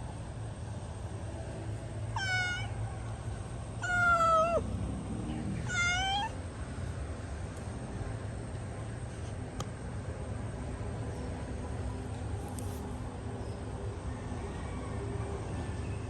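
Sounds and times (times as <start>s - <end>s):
cat meowing: 2.2s - 2.8s, 3.8s - 4.6s, 5.6s - 6.4s.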